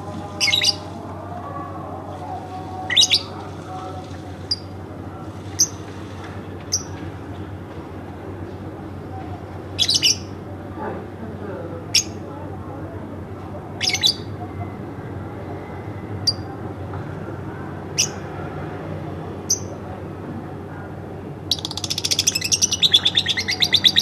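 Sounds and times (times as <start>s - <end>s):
lovebird chirping: 21.5s - 24.0s.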